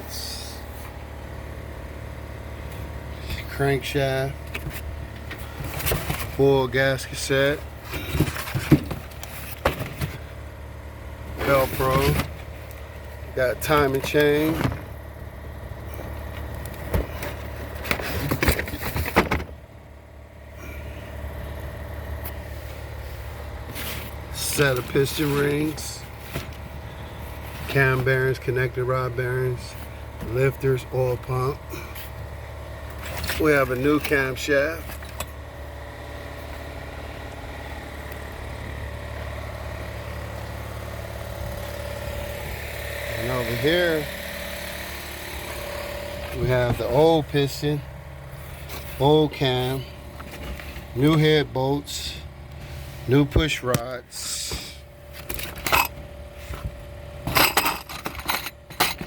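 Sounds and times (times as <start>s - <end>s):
engine idling with faint whine: 0.0s - 59.0s
steady low hum: 0.0s - 59.0s
parts clicking and clinking: 32.9s - 35.4s, 53.3s - 59.0s.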